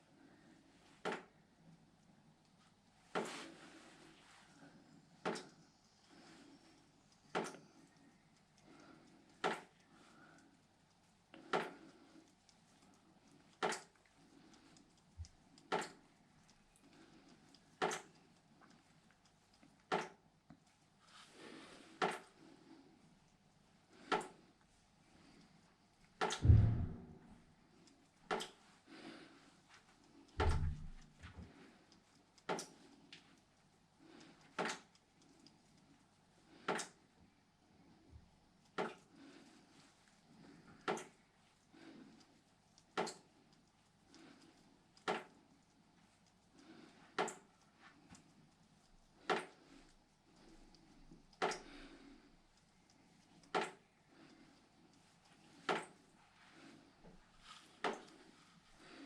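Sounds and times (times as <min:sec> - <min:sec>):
sharp knocks: 0:26.4 - 0:27.3.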